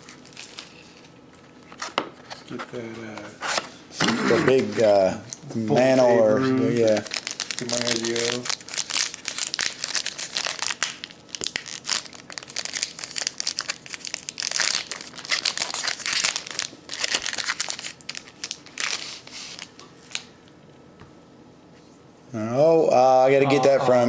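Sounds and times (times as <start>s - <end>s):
plastic packaging crinkling: 0.0s - 2.4s, 6.7s - 20.3s.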